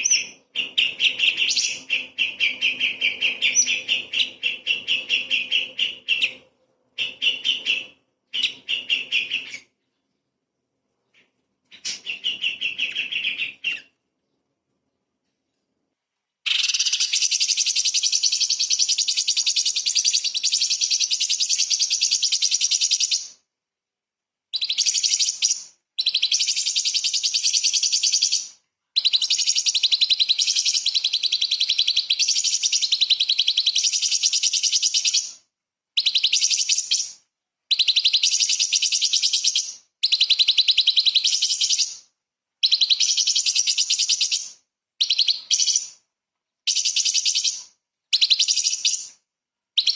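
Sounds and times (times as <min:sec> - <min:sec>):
bird singing chattering phrases: 0:00.0 - 0:06.4, 0:11.7 - 0:13.9.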